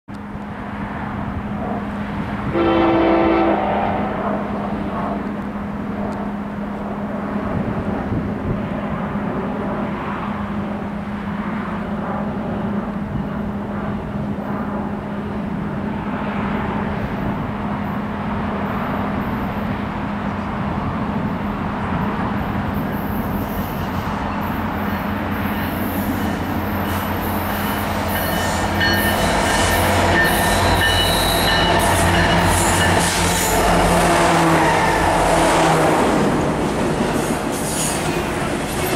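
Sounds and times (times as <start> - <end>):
diesel locomotive engine drone: 0.1 - 38.9
freight cars wheel clatter and squeal: 22.8 - 33.8, 36.9 - 38.9.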